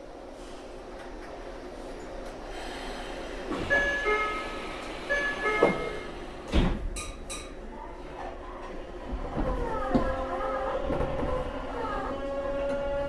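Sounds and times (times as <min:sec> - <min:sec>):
train steady tones: 0:00.0 - 0:13.0.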